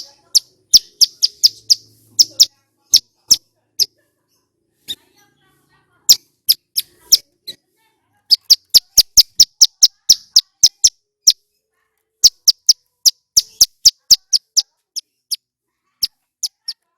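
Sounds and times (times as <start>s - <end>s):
bird chirping fast high chirps: 0.0s - 3.9s, 6.1s - 7.2s, 8.3s - 11.4s, 12.2s - 15.4s, 16.4s - 16.8s.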